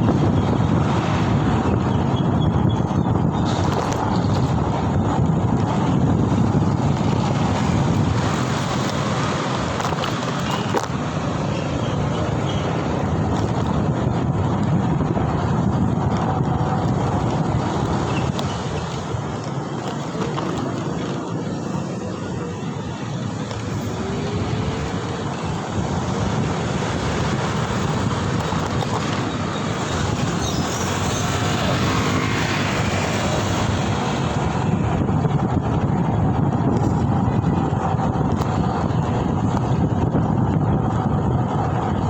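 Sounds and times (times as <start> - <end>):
road traffic noise: 0.0 - 42.0
wind rushing on microphone: 0.0 - 42.0.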